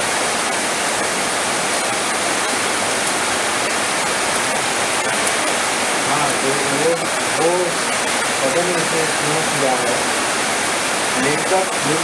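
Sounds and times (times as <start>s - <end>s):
heavy rain hissing: 0.0s - 12.0s
raindrop ticks: 3.0s - 3.2s, 4.3s - 10.0s.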